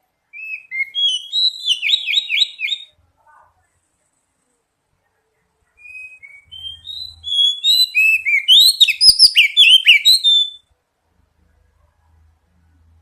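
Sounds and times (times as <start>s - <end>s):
bird singing whistled notes: 0.3s - 3.0s, 5.8s - 10.7s.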